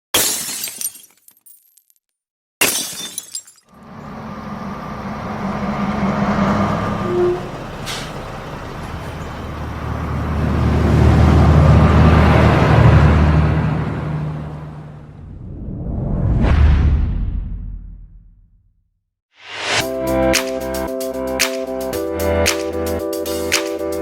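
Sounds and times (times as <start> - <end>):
vehicle engine running: 3.8 - 12.1
brief crash sounds: 15.4 - 18.6.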